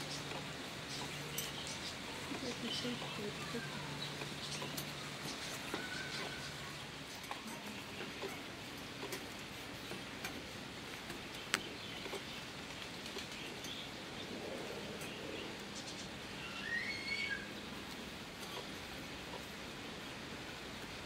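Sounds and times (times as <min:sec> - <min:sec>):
small bird chirping: 0:00.0 - 0:09.1, 0:11.1 - 0:18.7
outdoor background hiss: 0:00.0 - 0:21.0.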